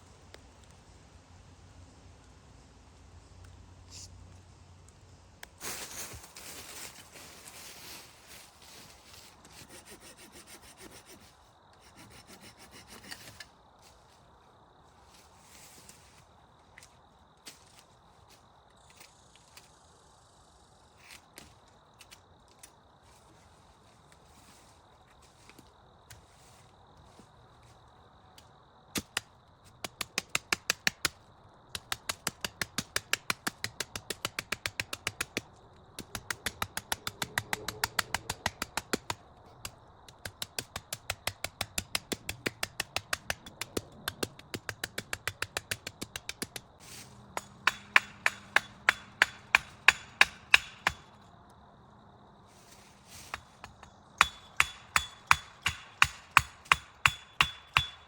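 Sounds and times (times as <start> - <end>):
rapid sharp knocks: 31.8 - 39.2, 40.1 - 46.7, 47.4 - 51.0, 53.7 - 58.0.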